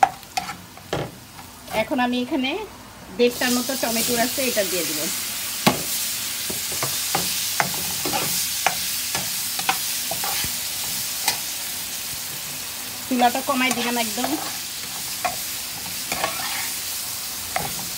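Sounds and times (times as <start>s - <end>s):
spatula scraping a pan: 0.0s - 0.6s, 6.5s - 11.5s, 13.6s - 16.8s, 17.5s - 17.9s
food sizzling in a frying pan: 0.0s - 17.9s.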